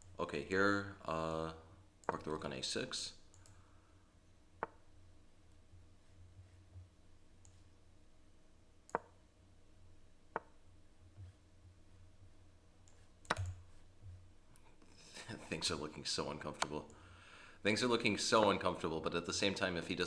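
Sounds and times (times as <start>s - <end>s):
faint low hum: 0.0s - 20.0s
short sharp clicks: 13.2s - 13.6s.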